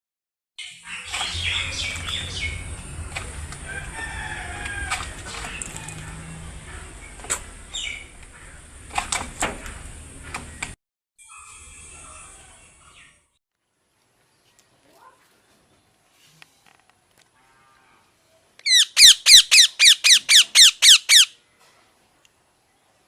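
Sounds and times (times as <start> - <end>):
parrot calling: 18.6 - 21.4
parrot squawks: 18.6 - 21.4.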